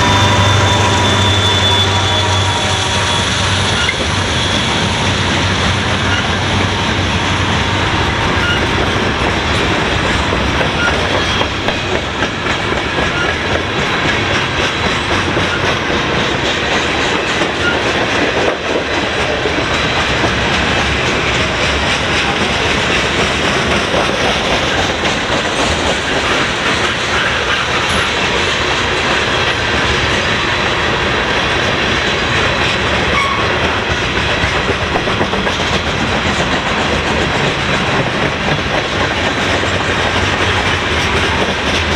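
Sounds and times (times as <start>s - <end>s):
freight train rumbling past: 0.0s - 41.9s
wheels clacking over rail joints: 0.0s - 41.9s.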